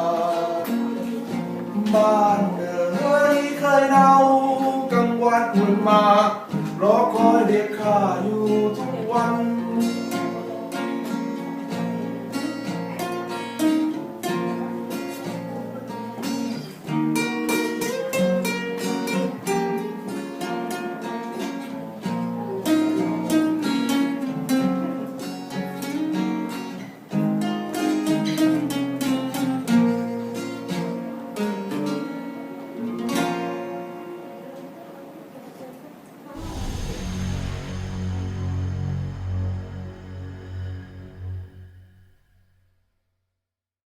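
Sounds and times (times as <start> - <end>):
acoustic guitar strumming: 36.4 - 42.7.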